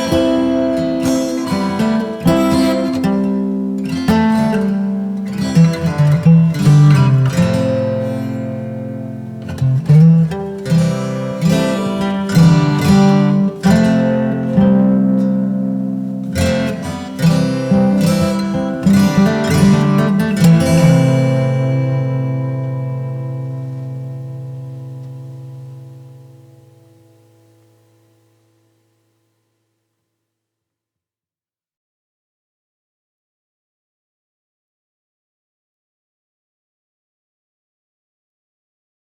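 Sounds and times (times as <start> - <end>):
strummed acoustic guitar: 0.0 - 28.6.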